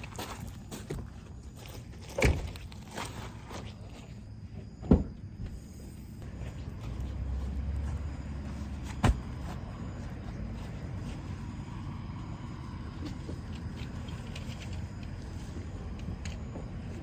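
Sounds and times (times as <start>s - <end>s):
low vehicle rumble: 5.1s - 17.0s.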